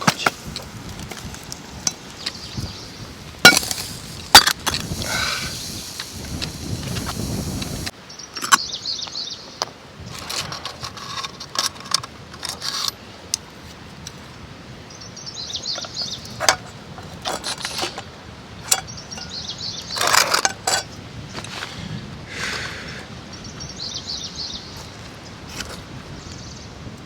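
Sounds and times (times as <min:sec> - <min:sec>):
small birds chirping: 0:01.6 - 0:10.2, 0:14.9 - 0:16.4, 0:18.7 - 0:20.2, 0:22.8 - 0:25.4.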